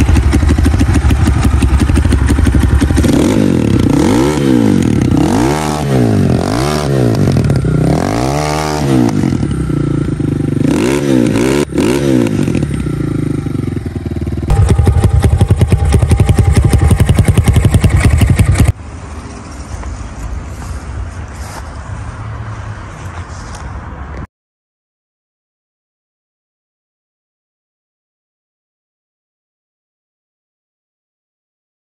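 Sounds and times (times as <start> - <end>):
motorcycle engine revving and idling: 0.0 - 18.8.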